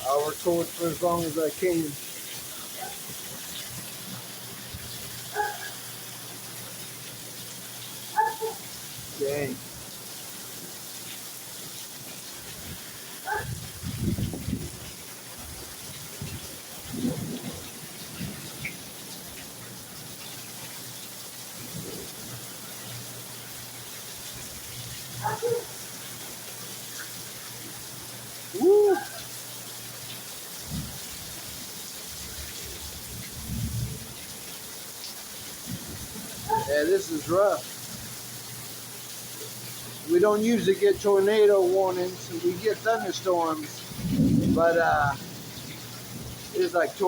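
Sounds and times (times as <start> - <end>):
heavy rain: 0.0 - 47.0
wind buffeting microphone: 12.5 - 18.8, 30.6 - 31.4, 32.2 - 34.2, 35.6 - 36.7, 43.9 - 45.3
wind rushing: 13.4 - 14.9, 43.9 - 45.2.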